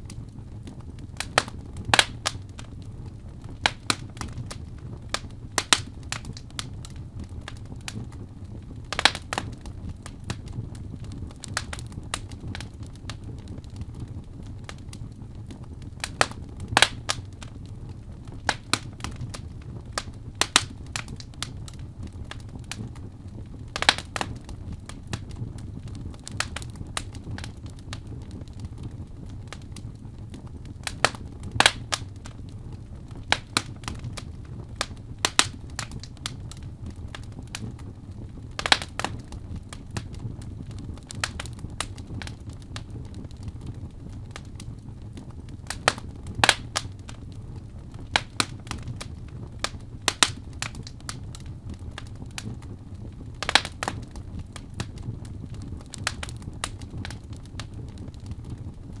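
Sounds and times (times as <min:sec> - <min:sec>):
fire crackling and popping: 0:00.0 - 0:59.0
low rumble of flames: 0:00.0 - 0:59.0.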